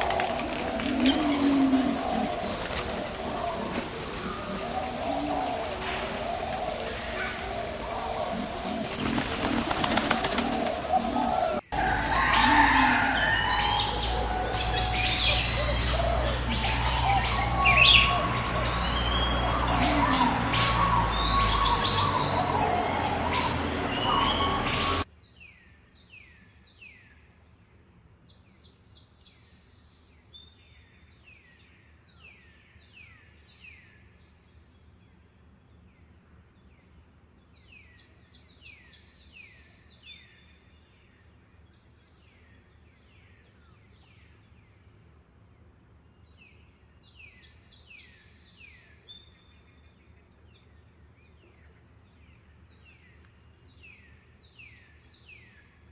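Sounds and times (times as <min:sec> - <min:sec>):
high insect drone: 0:00.0 - 0:25.0
songbird falling notes: 0:00.0 - 0:25.0
dense forest birdsong: 0:00.0 - 0:27.3, 0:28.2 - 0:55.9.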